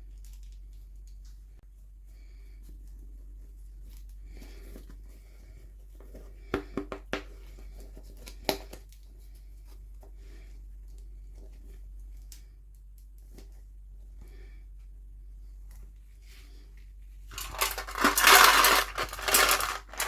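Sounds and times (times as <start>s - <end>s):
packaging rustling: 17.3s - 20.0s.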